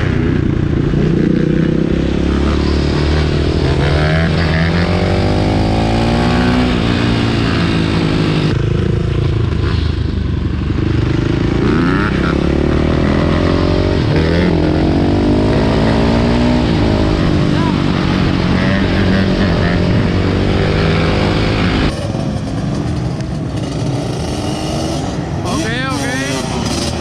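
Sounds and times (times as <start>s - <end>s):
dirt bike engine revving: 0.0s - 10.0s, 10.7s - 27.0s.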